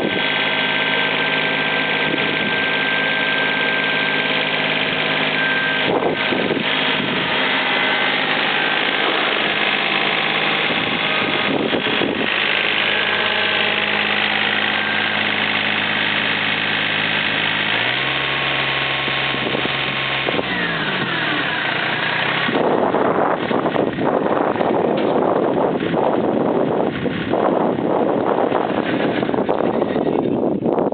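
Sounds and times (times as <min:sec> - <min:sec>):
wind noise on microphone: 0:00.0 - 0:04.0, 0:04.8 - 0:13.7, 0:19.2 - 0:30.9
diesel engine idling: 0:00.0 - 0:30.5.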